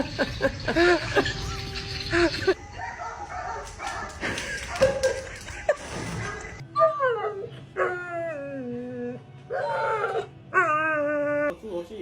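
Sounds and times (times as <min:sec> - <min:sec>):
tv music and sound: 0:00.0 - 0:06.6
dog howling and whining: 0:06.2 - 0:11.5.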